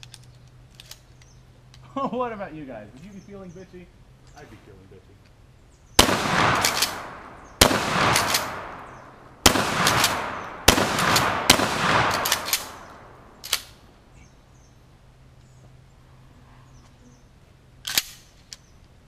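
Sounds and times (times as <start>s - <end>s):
short sharp cracks: 6.0s - 13.9s, 17.8s - 18.7s
shotgun shots echoing: 6.0s - 13.9s.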